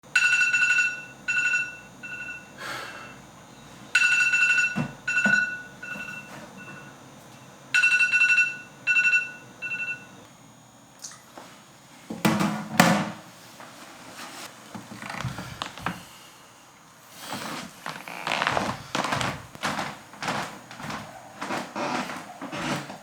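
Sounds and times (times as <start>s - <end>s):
alarm beeping: 4.0s - 7.0s
faint rustling: 17.2s - 23.0s.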